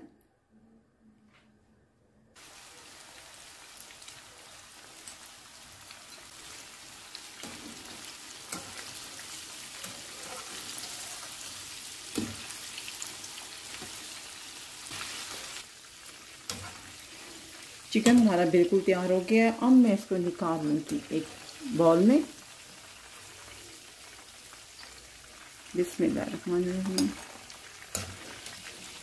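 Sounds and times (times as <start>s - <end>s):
chicken deep-frying in oil: 2.4s - 29.0s
metal utensil clicking on pan: 18.0s - 18.4s, 26.8s - 28.6s.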